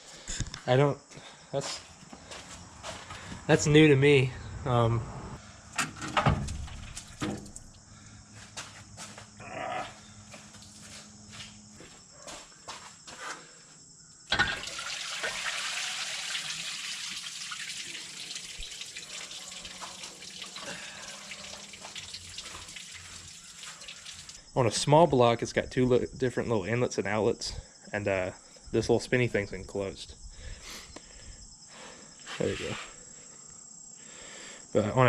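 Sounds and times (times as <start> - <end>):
rush of running liquid: 14.4 - 24.4.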